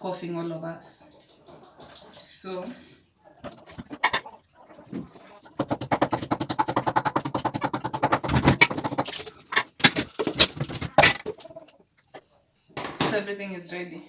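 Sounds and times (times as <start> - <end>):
knife chopping on cutting board: 5.6 - 9.2
kitchen things set down knocking: 6.8 - 11.5, 12.8 - 13.3.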